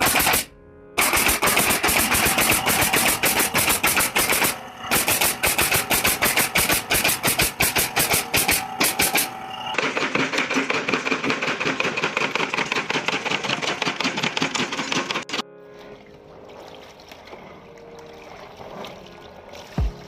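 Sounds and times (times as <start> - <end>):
rapid sharp clicks: 0.0 - 15.4.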